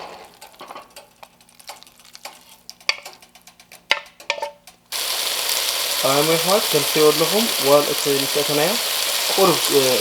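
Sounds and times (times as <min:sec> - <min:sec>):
utensil knocking on cookware: 0:02.8 - 0:04.7.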